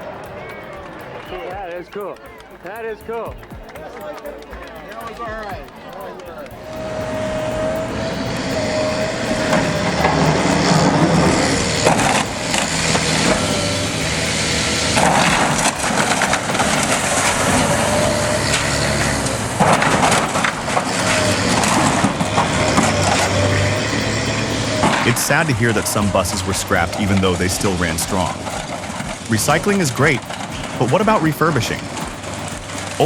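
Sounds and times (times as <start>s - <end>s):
wavering whine: 0.0s - 33.0s
diesel engine hum: 6.4s - 33.0s
demolition machinery crushing material: 6.7s - 33.0s.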